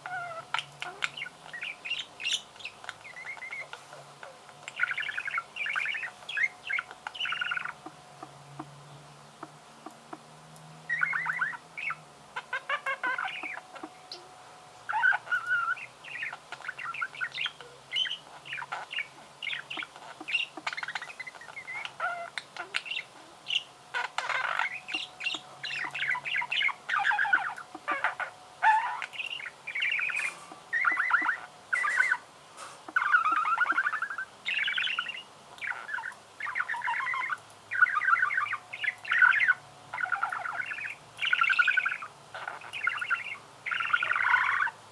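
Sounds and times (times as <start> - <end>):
budgerigar chattering and chirping: 0.0 - 8.7, 10.9 - 14.2, 14.9 - 32.2, 32.9 - 44.8
budgerigar squawking: 14.9 - 32.2, 32.9 - 44.8.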